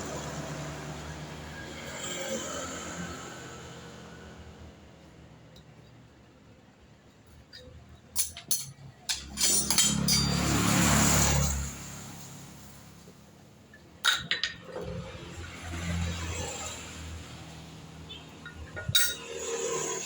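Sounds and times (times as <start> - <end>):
metal tools clinking: 7.5 - 10.8, 18.4 - 19.7.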